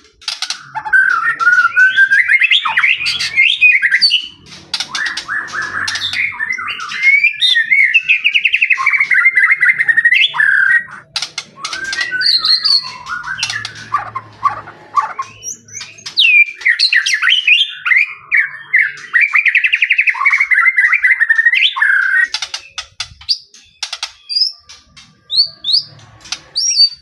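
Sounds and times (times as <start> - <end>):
bird sharp clicking notes: 0.0 - 17.3
songbird singing: 0.0 - 27.0.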